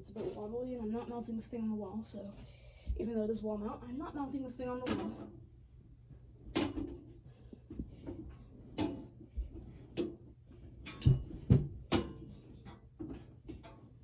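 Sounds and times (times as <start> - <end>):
faint steady hum: 0.0 - 14.0
equipment rack knocks and clunks: 6.5 - 7.0, 10.8 - 13.9.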